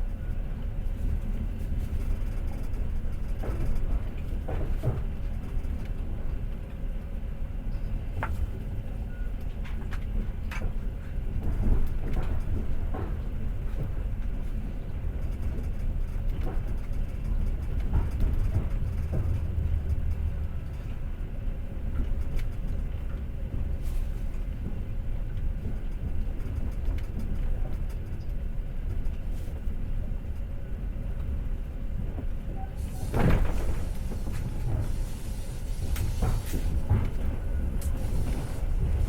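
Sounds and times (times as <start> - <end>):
clicks and knocks from train: 0.0 - 39.0
train wheels rumbling on rails: 0.0 - 39.0.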